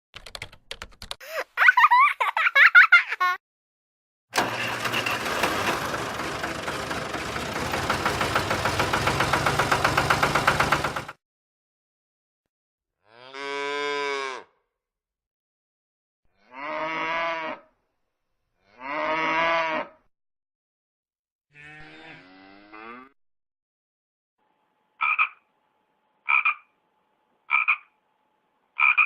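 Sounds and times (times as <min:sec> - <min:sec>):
drawn-out animal call: 0:04.4 - 0:11.1.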